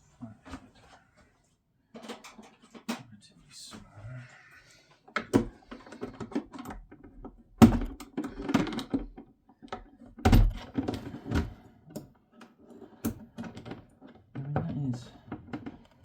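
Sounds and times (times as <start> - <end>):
clicks taps and rattles: 1.9 - 3.2, 5.0 - 16.0.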